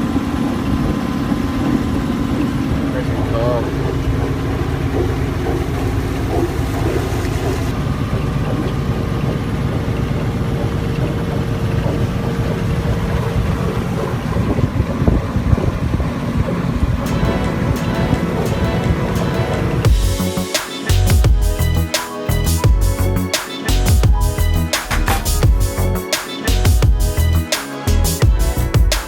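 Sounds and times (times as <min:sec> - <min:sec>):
boat engine low rumble: 0:00.0 - 0:23.3
wind buffeting microphone: 0:07.6 - 0:17.1.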